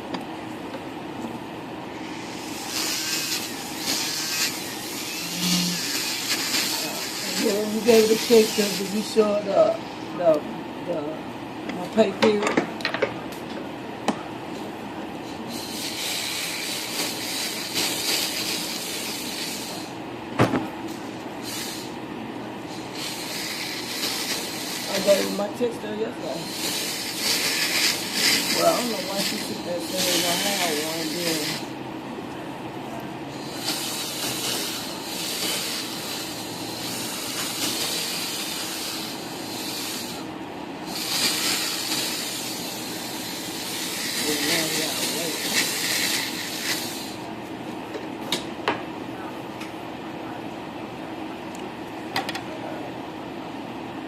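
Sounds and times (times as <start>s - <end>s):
electric nail drill grinding: 1.9s - 9.5s, 15.3s - 19.9s, 21.4s - 21.9s, 22.7s - 25.7s, 26.3s - 31.8s, 33.3s - 47.3s.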